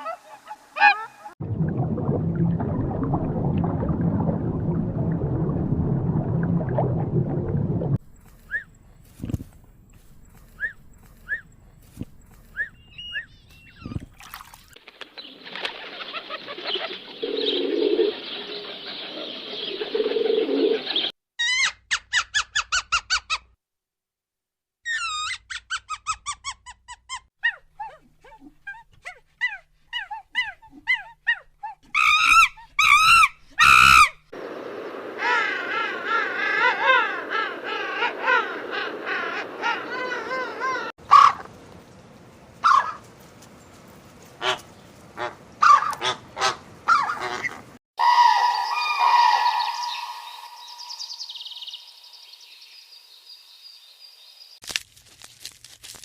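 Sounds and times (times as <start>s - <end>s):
flock of birds calling: 34.9s - 41.4s, 45.2s - 51.9s
loud single bird calls: 46.9s - 52.2s.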